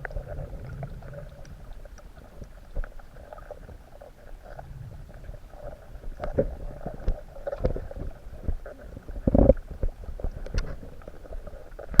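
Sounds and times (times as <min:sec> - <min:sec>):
underwater rumbling and gurgling: 0:00.0 - 0:12.0
underwater clicks and knocks: 0:06.1 - 0:12.0.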